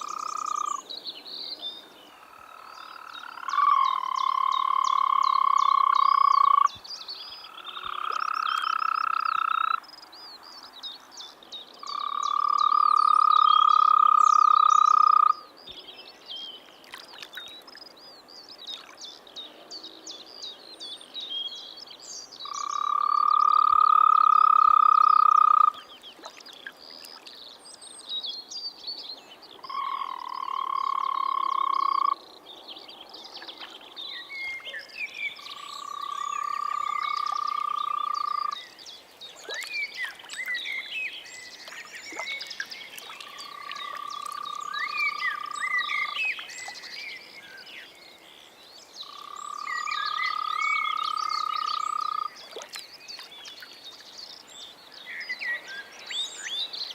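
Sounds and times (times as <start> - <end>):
frog calling: 0.0 - 0.9, 2.1 - 6.8, 7.4 - 9.9, 11.8 - 15.5, 22.4 - 25.9, 29.6 - 32.3, 33.5 - 38.8, 39.4 - 47.7, 49.0 - 52.8.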